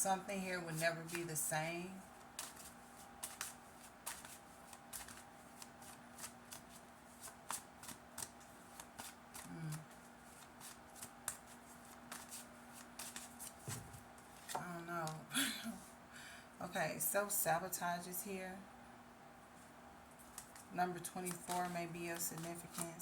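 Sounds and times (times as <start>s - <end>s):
cards being shuffled: 2.2s - 15.2s, 20.2s - 23.0s.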